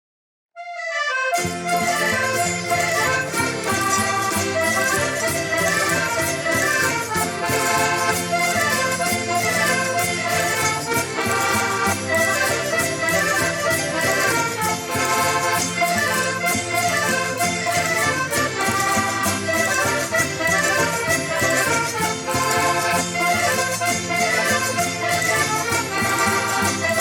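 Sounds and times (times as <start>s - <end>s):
folk music on accordion: 0.6s - 27.0s.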